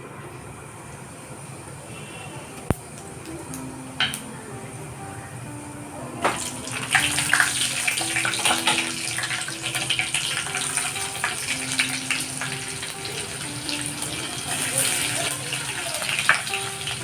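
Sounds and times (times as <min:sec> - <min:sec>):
tap water running and splashing: 0:06.2 - 0:17.0.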